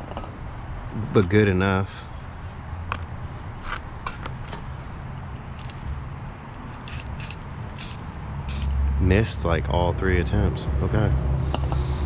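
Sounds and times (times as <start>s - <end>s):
spray can hissing bursts: 6.8s - 8.7s.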